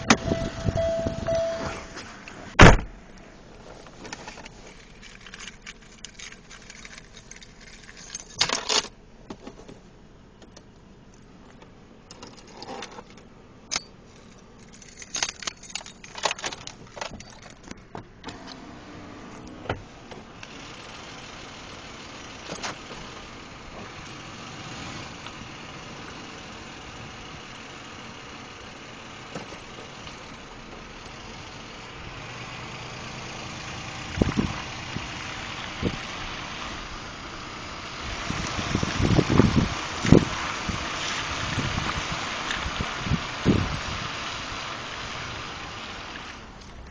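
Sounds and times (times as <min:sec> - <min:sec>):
car engine starting and idling: 0:00.0 - 0:46.9
keys jangling: 0:04.7 - 0:08.9, 0:13.7 - 0:17.8.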